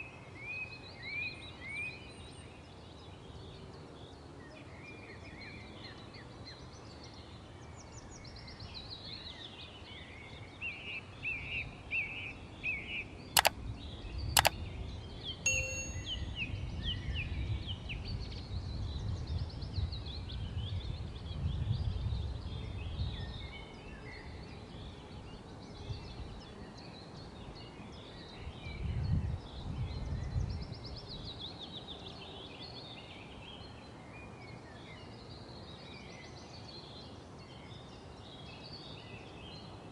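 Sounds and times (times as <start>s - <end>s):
sharp clicks: 15.5s - 16.2s.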